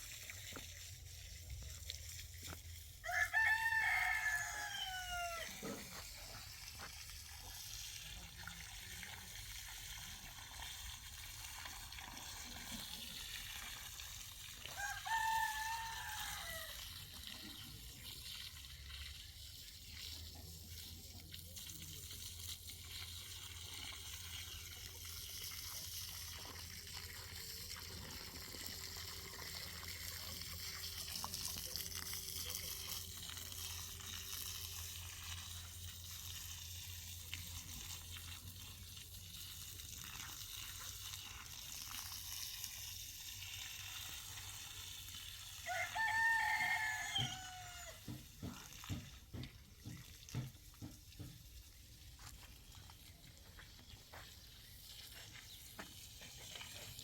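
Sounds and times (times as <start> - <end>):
rooster crowing: 3.0 - 5.6, 14.7 - 16.8, 45.6 - 48.1.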